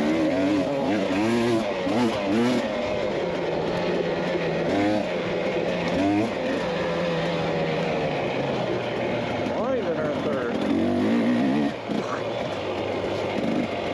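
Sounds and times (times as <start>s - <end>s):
dirt bike engine revving: 0.0s - 13.9s.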